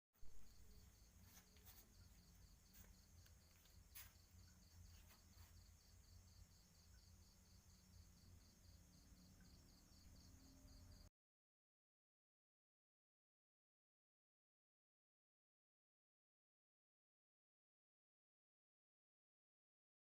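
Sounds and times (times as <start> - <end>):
cricket chirping: 0.2 - 11.1.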